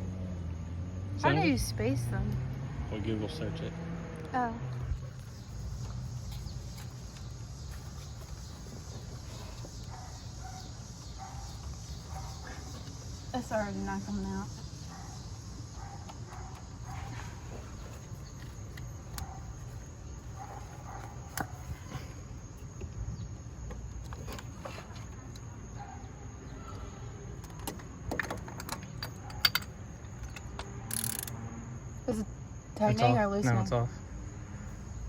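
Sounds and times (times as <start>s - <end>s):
socket wrench clicking: 28.4s - 31.4s.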